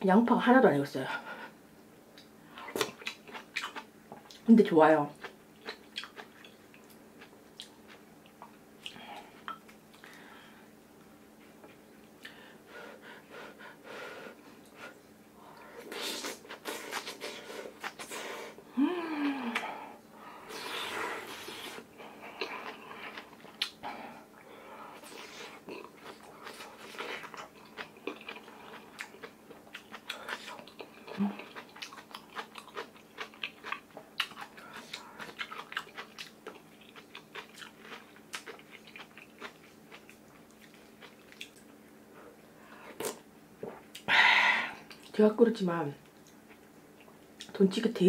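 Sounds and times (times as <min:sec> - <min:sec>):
chewing and crunching: 0:02.2 - 0:04.5, 0:05.1 - 0:10.2, 0:20.5 - 0:41.8.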